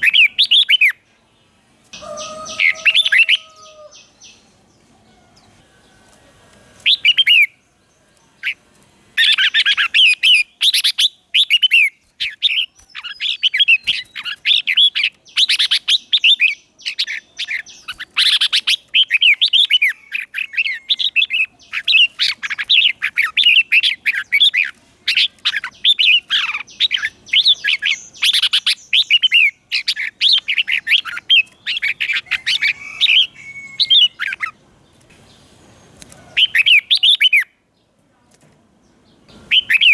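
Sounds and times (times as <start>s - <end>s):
bulbul singing warbling phrases: 6.8s - 7.6s, 9.2s - 34.6s, 39.3s - 39.9s.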